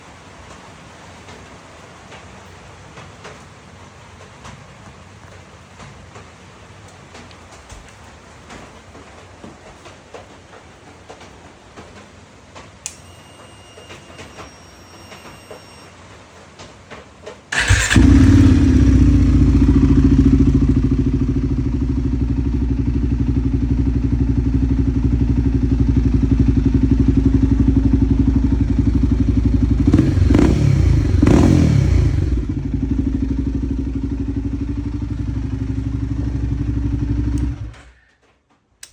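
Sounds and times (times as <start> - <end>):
motorcycle engine starting and idling: 12.8 - 15.9, 17.5 - 38.2.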